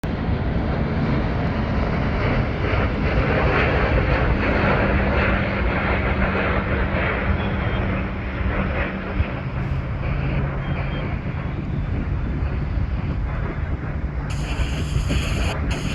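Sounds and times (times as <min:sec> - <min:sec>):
jet airliner engines rumbling: 0:00.1 - 0:15.9.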